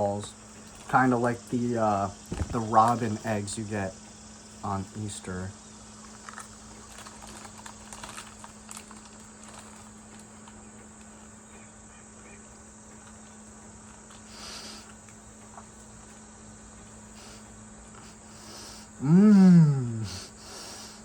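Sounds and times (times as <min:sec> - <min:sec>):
low electrical hum: 0:00.0 - 0:21.0
faint clicks and rustles: 0:02.1 - 0:04.2, 0:06.0 - 0:18.3
short breathy hiss: 0:14.2 - 0:15.1, 0:17.0 - 0:21.0.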